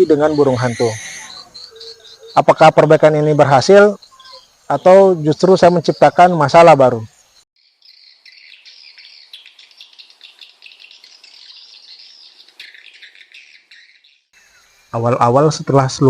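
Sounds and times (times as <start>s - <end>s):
swiftlets twittering: 0.0s - 6.7s.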